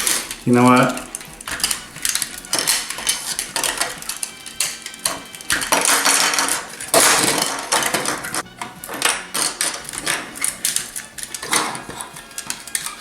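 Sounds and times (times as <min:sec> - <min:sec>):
plastic toy parts clattering: 0:00.0 - 0:13.0.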